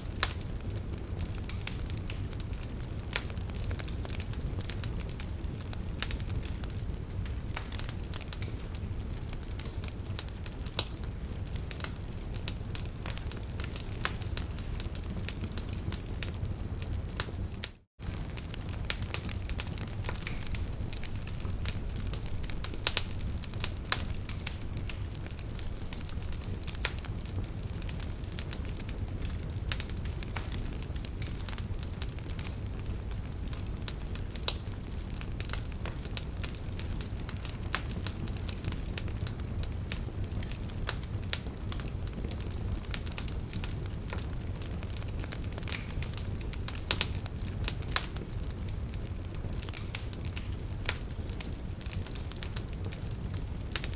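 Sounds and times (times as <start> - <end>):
burning logs crackling and popping: 0.0 - 53.9
wood fire burning: 0.0 - 53.9.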